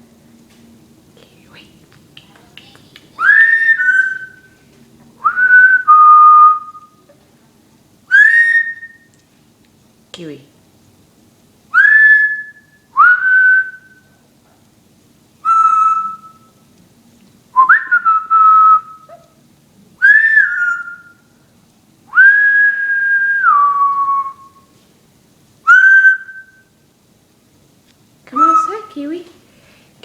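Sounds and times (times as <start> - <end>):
parrot whistling notes: 3.2 - 4.6, 5.2 - 7.0, 8.1 - 9.1, 11.7 - 14.1, 15.4 - 16.6, 20.0 - 21.2, 25.7 - 26.7, 28.4 - 29.0.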